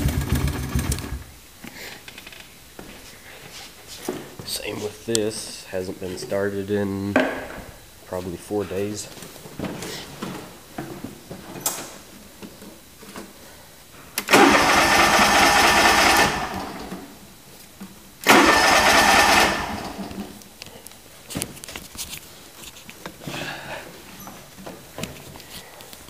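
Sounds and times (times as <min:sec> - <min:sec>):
small engine turning over: 0:14.2 - 0:17.0, 0:18.2 - 0:20.1.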